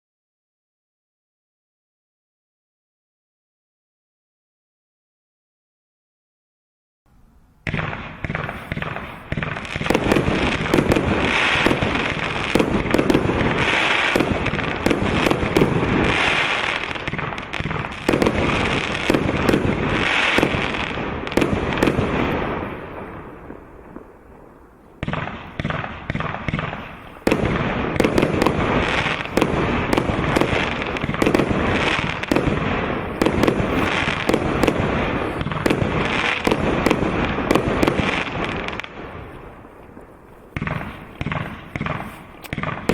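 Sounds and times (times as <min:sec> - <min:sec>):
firework crackle: 0:07.6 - 0:42.9
firework cake firing shells: 0:07.7 - 0:23.0.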